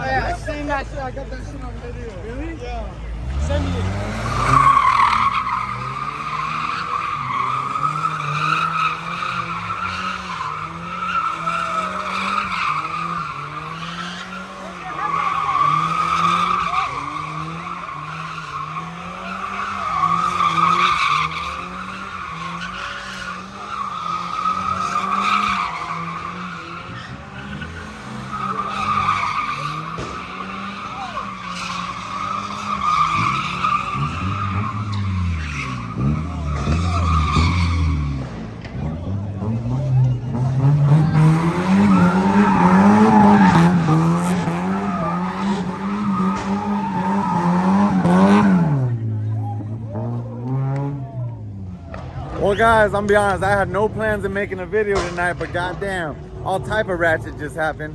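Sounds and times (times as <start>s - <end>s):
car engine revving: 0.0s - 57.9s
tyre squeal: 3.7s - 38.2s.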